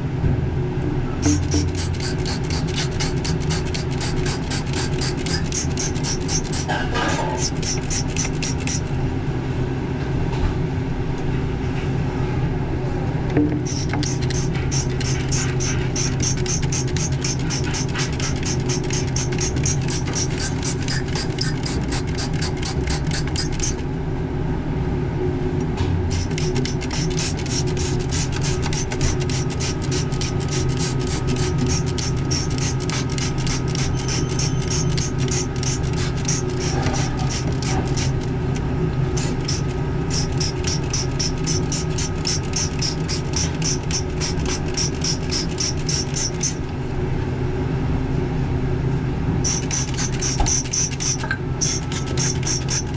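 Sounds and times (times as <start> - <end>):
refrigeration machinery humming: 0.0 - 52.9
fast rasping ticks: 1.3 - 6.8, 7.4 - 8.8, 13.7 - 23.8, 26.1 - 38.2, 39.2 - 46.6, 49.5 - 52.9.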